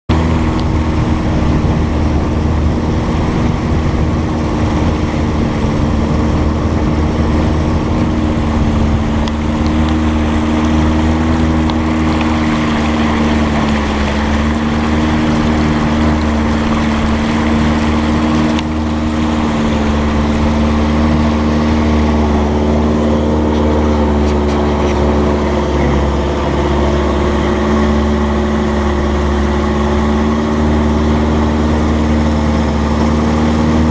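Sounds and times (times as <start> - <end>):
boat engine running: 0.0 - 33.9.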